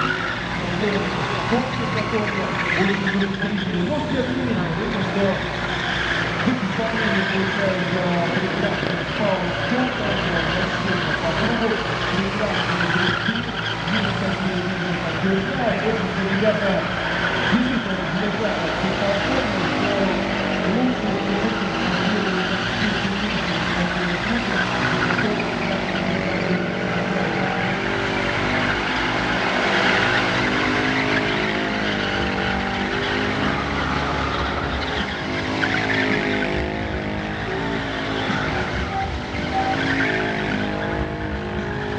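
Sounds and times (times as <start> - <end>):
motorcycles revving: 0.0 - 41.9
tyres skidding and squealing: 0.0 - 41.9.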